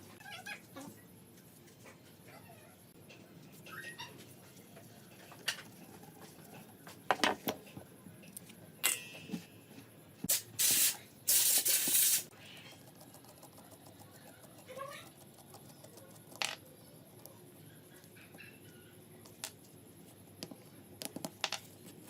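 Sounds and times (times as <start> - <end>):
spray can hissing: 10.3 - 12.3.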